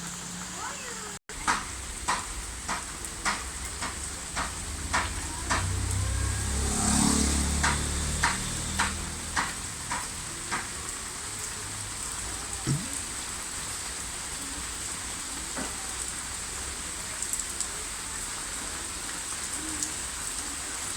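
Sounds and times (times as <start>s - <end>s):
steady rain hissing: 0.0s - 7.0s, 8.0s - 20.9s
sharp drips: 12.5s - 13.1s.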